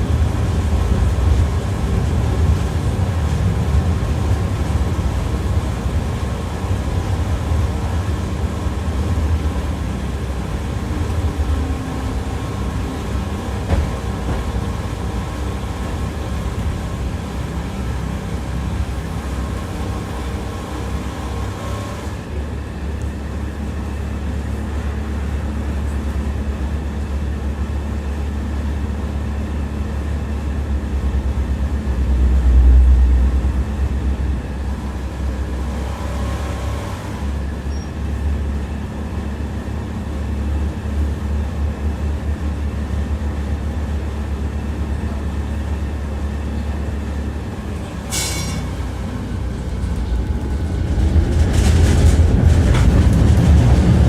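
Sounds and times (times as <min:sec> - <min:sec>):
tram wheels rumbling on rails: 0:00.0 - 0:54.0
faint whine: 0:29.3 - 0:52.8.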